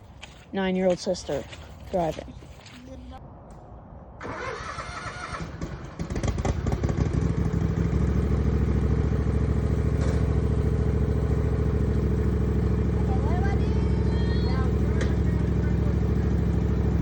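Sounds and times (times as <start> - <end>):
machine engine running: 5.6 - 17.0
clatter: 9.8 - 10.6.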